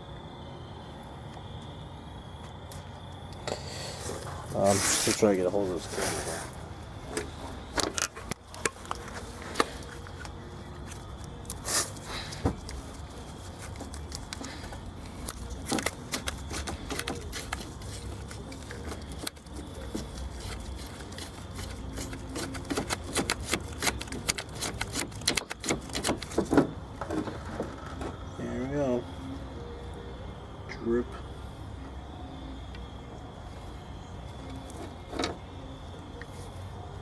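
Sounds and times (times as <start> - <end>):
tools clicking and scraping metal: 7.1 - 26.6.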